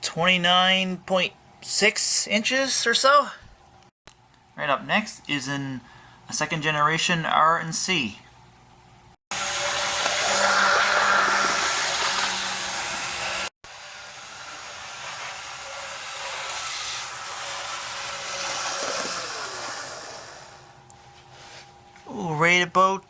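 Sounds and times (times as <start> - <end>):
model train motor whirring rattle: 9.4 - 20.6.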